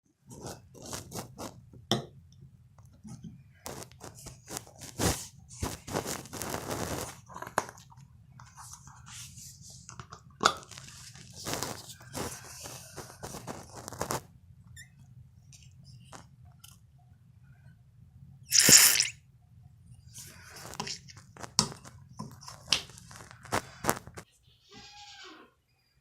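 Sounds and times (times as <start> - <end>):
low steady hum: 0.1 - 18.5, 19.1 - 24.3
crunching and crinkling handling: 0.2 - 1.6, 3.0 - 14.3, 20.2 - 24.3.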